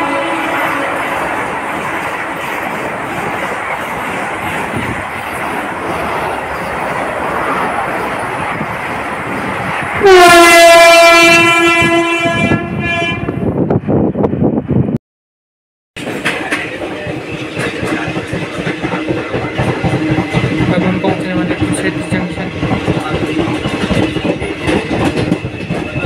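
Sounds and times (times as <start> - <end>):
train horn blast: 0.0 - 1.3, 10.0 - 13.5
train rushing past: 0.0 - 15.0, 16.0 - 26.0.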